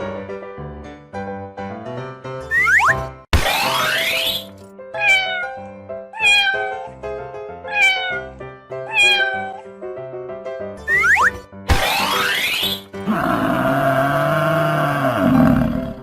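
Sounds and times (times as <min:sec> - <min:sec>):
cat meowing: 0:05.0 - 0:05.6, 0:06.2 - 0:07.0, 0:07.7 - 0:09.6
bouncy children's music: 0:10.7 - 0:12.9.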